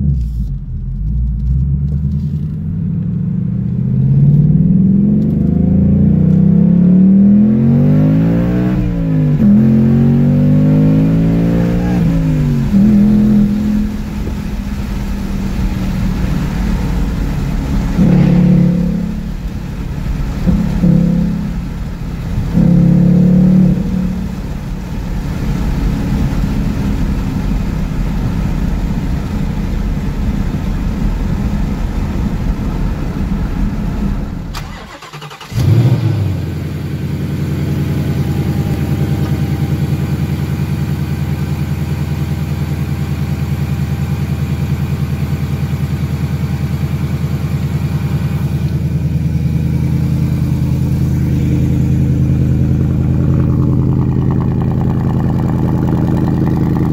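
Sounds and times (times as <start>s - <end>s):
car engine at speed: 0.0s - 56.9s
engine idling: 12.0s - 56.9s
engine starting with a flare: 33.5s - 36.6s.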